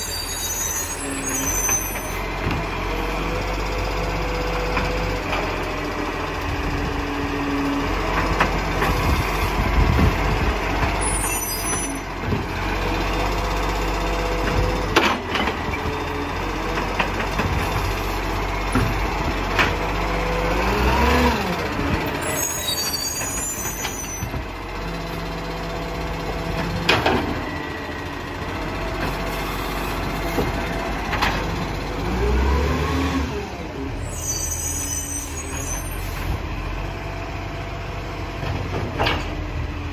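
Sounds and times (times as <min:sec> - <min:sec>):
hydraulics whining: 0:00.0 - 0:02.6, 0:16.8 - 0:24.7, 0:33.2 - 0:36.6
diesel engine running: 0:02.0 - 0:39.9.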